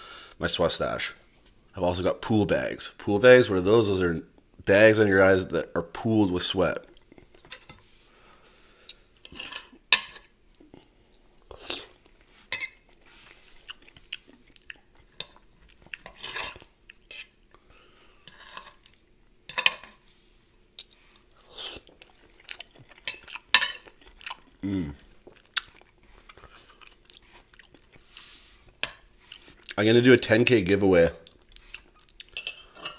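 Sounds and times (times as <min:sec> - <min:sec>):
person chewing: 0:06.8 - 0:07.6, 0:10.5 - 0:19.1, 0:20.7 - 0:29.8, 0:31.2 - 0:32.9.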